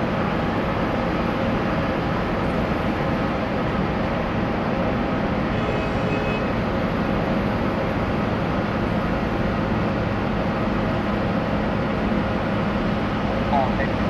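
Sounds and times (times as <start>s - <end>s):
jetliner hum and rumble: 0.0s - 14.0s.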